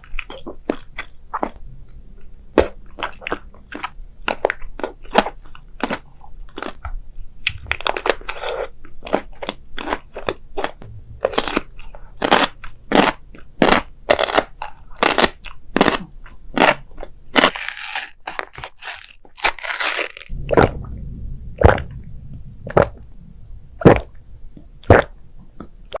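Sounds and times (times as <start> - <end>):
person chewing crisp food: 13.7 - 20.3
crackly noise: 20.1 - 26.0.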